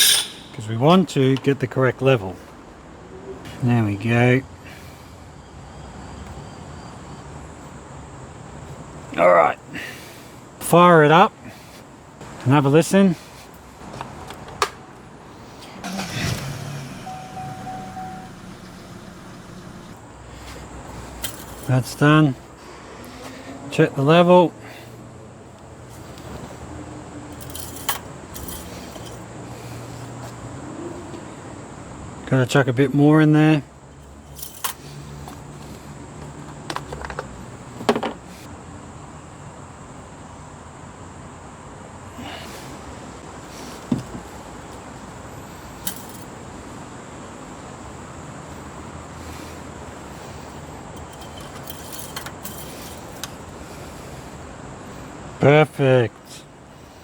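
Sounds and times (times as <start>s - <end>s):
car engine starting and idling: 15.8s - 20.0s
ignition click: 15.8s - 20.0s
low steady hum: 16.8s - 20.0s
short beeping tone: 17.1s - 19.7s.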